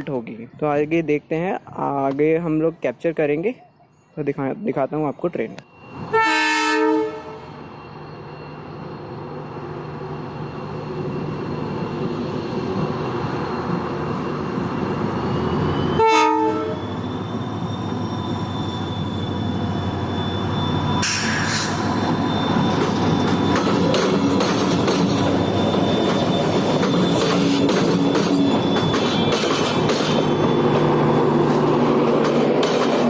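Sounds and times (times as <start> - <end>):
train rumble: 4.7 - 33.0
locomotive horn blasts: 6.1 - 7.5, 16.0 - 16.8
high hiss or screech: 16.9 - 22.0.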